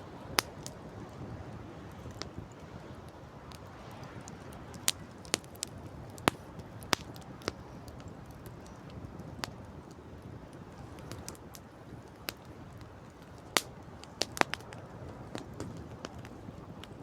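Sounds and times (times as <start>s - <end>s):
sea surf: 0.0s - 5.4s
campfire crackling: 0.0s - 17.0s.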